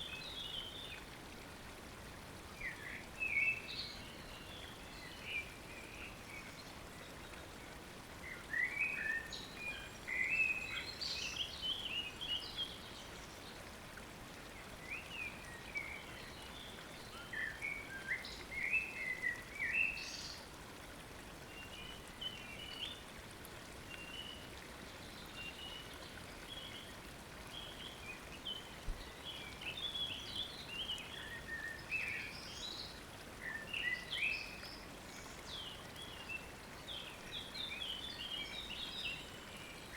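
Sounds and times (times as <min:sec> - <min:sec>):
stream running water: 0:00.0 - 0:39.9.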